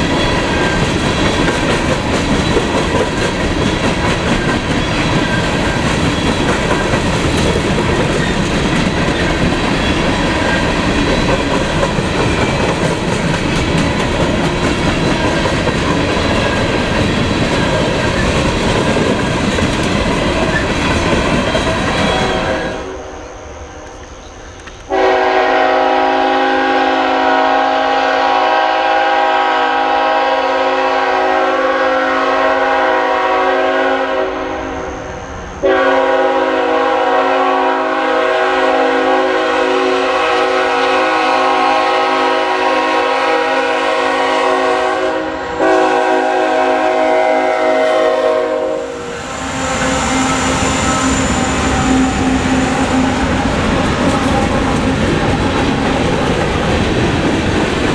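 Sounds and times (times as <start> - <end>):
passing train running noise: 0.0 - 57.9
locomotive air horn blasts: 22.0 - 23.2, 24.9 - 34.4, 35.6 - 53.4.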